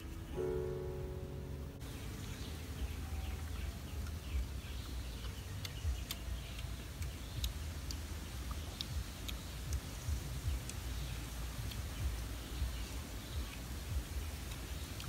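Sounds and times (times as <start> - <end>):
music: 0.0 - 1.9
birds chirping: 0.0 - 15.0
person chewing food: 3.3 - 11.0.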